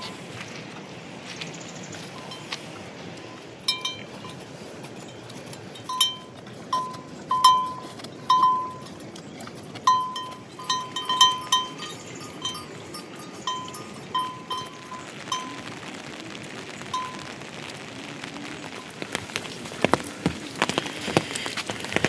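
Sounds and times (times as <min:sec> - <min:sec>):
rain hissing: 0:00.0 - 0:08.8, 0:10.4 - 0:22.0
small metal bell clanking: 0:05.8 - 0:09.0, 0:09.9 - 0:15.5.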